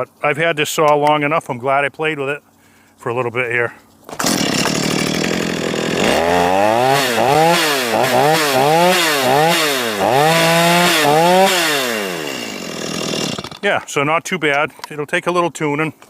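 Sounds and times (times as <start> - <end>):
chainsaw engine revving: 4.1 - 13.8.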